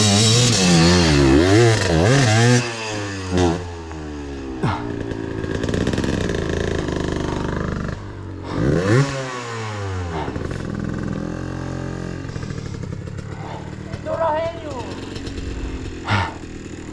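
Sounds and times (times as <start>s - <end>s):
dirt bike engine lugging: 12.2s - 16.9s.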